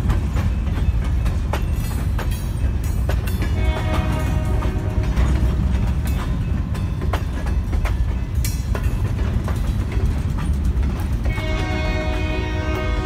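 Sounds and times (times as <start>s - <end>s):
freight train rumbling past: 0.0s - 13.0s
wheels clanking on rails: 0.0s - 13.0s.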